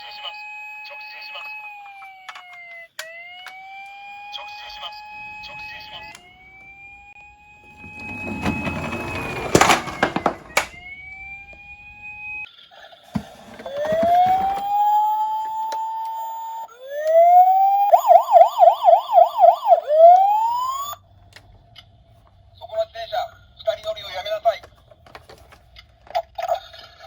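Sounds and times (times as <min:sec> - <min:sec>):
toy ambulance siren: 0:00.0 - 0:12.5, 0:13.1 - 0:21.6
plastic toy car rattling: 0:07.7 - 0:10.8, 0:24.4 - 0:27.0.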